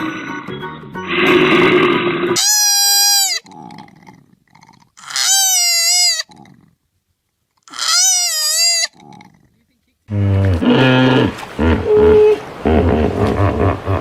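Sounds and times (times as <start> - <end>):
goat bleating: 2.4 - 3.6, 7.7 - 9.0.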